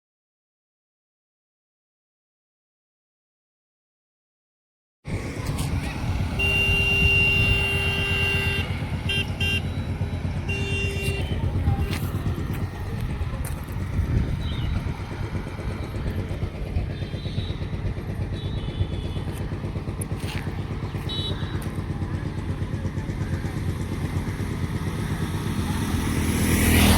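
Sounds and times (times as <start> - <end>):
vehicle engine running: 5.1 - 26.9.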